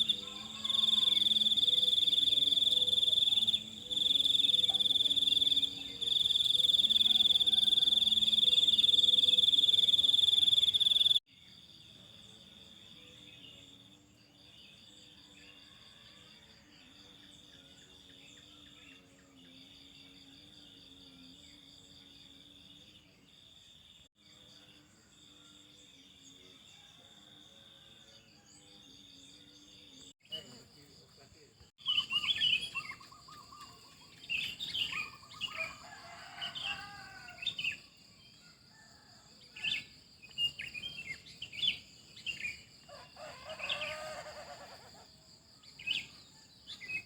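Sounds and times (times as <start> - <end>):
crickets trilling: 0.0 - 11.3, 28.8 - 47.0.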